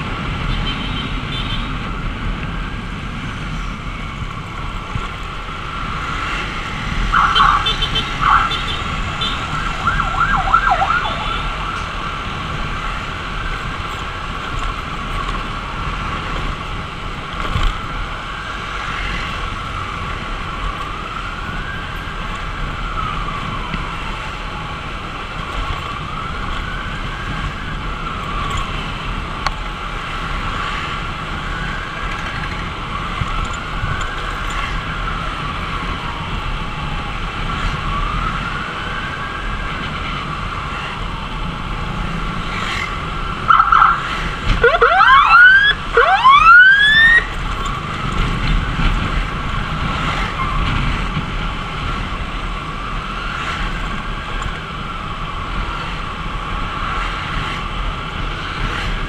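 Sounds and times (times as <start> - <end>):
wind and road noise: 0.0 - 59.0
ambulance siren wailing: 1.7 - 15.0, 17.8 - 57.0
siren yelp: 7.0 - 12.3, 43.1 - 47.4.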